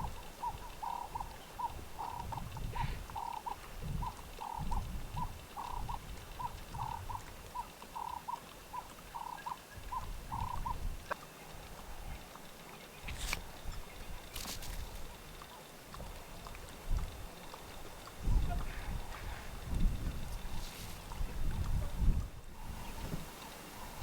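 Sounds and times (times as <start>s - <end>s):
wind rumble on microphone: 0.0s - 8.1s, 9.8s - 12.3s, 13.0s - 24.0s
brief rustles: 13.0s - 13.5s, 14.3s - 15.1s.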